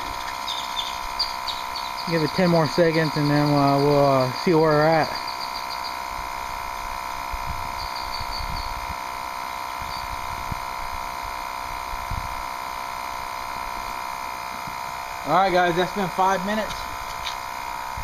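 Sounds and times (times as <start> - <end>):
tire inflator compressor buzzing hum: 0.0 - 18.0.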